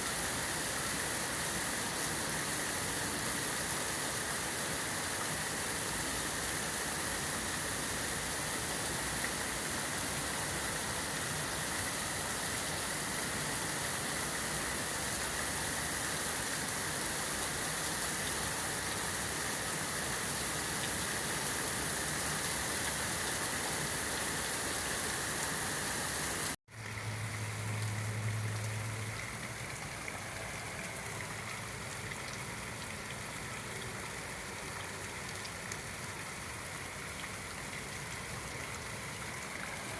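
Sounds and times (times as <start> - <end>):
heavy rain falling: 0.0 - 31.2.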